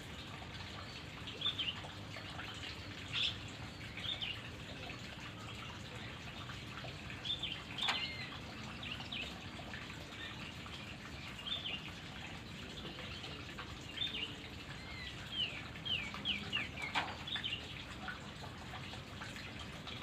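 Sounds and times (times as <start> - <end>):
bird chirping calls: 7.2 - 10.7, 12.8 - 17.8.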